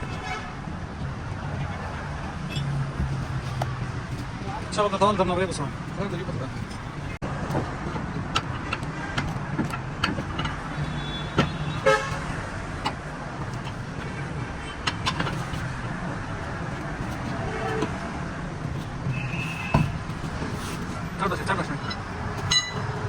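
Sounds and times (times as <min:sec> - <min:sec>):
vehicle horn toot: 0:00.0 - 0:00.6, 0:10.8 - 0:12.4, 0:19.1 - 0:20.0, 0:22.5 - 0:22.9
traffic engine rumble: 0:00.0 - 0:23.0.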